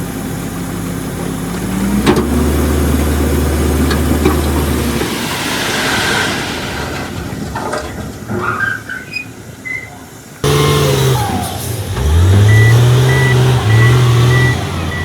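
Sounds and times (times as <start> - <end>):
diesel machine engine running: 10.4 - 15.0.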